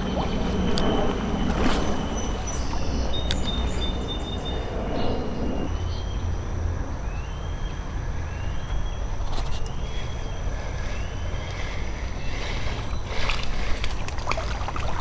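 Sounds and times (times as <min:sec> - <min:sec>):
creek water sloshing: 0:00.0 - 0:04.7, 0:10.6 - 0:15.0
short rising chirp: 0:00.0 - 0:05.9
low rumble: 0:00.0 - 0:07.0.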